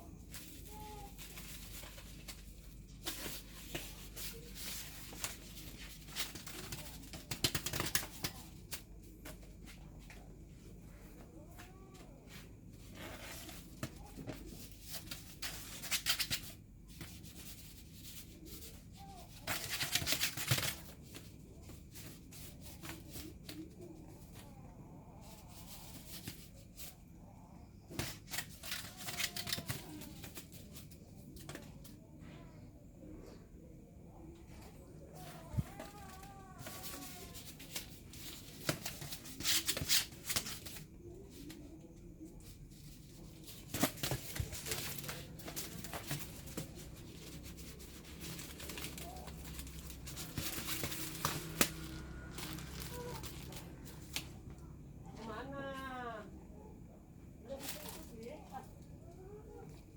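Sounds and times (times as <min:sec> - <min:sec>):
rustling and scratching: 0:00.0 - 0:33.4, 0:34.1 - 0:55.2, 0:57.4 - 0:59.9
paper or plastic crinkling: 0:43.1 - 0:54.3.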